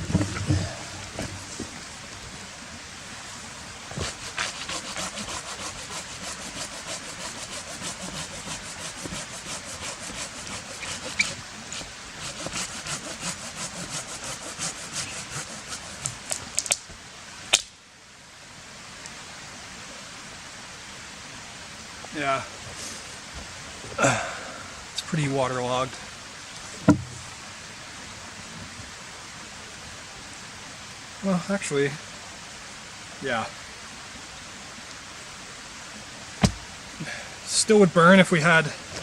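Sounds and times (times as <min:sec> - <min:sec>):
hand saw cutting wet wood: 0:04.0 - 0:16.4.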